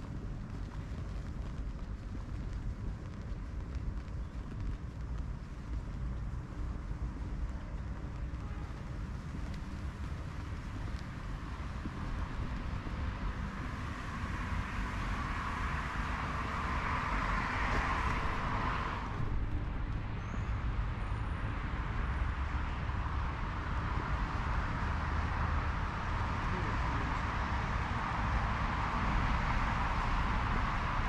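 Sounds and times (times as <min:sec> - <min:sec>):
street traffic rumble: 0:00.0 - 0:31.0
vehicle passing: 0:09.9 - 0:31.0.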